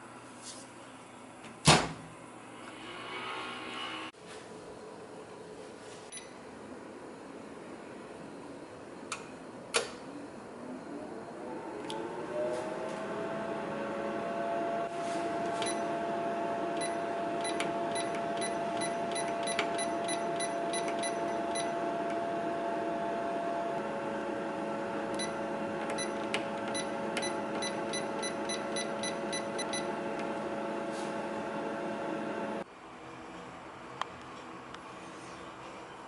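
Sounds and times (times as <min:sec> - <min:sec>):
fan motor humming: 0:08.3 - 0:32.6.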